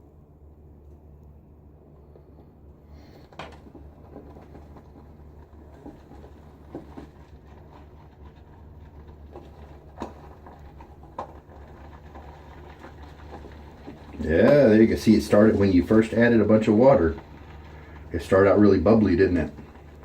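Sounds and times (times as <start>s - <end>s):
steady low hum: 0.0s - 20.0s
shaving brush squishing lather: 11.8s - 20.0s.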